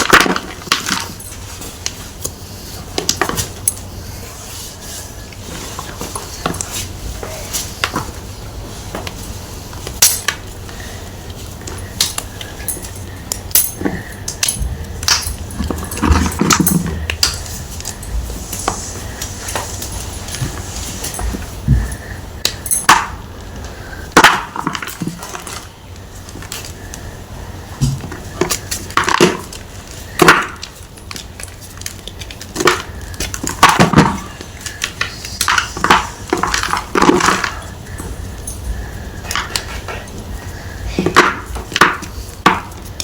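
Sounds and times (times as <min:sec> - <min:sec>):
crisp chalk cracks: 0:27.8 - 0:38.0.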